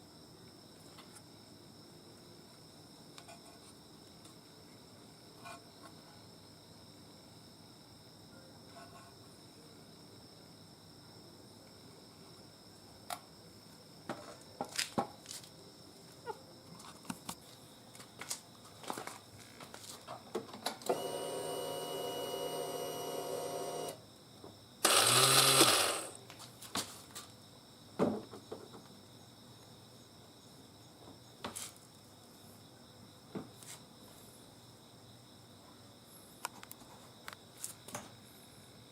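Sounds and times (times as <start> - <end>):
crickets chirping: 0.0 - 38.9
whirring motor: 20.9 - 24.0, 24.8 - 26.2.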